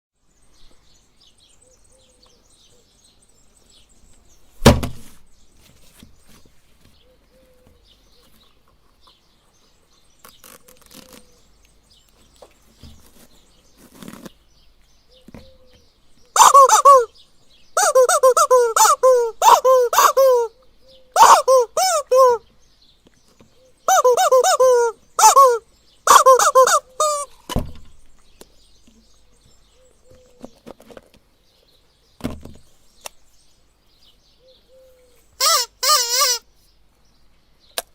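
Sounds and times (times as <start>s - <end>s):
loud thump: 4.6s - 5.2s, 27.5s - 28.0s
rubber chicken squawking: 16.3s - 17.2s, 17.8s - 22.4s, 23.8s - 27.4s, 35.4s - 36.5s.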